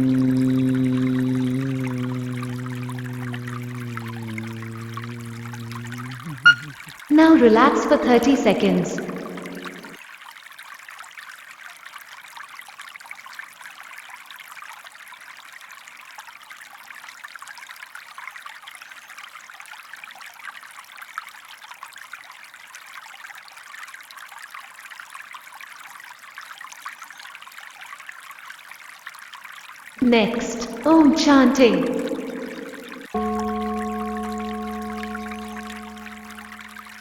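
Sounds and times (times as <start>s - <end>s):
stream trickling: 0.0s - 13.2s, 28.8s - 37.0s.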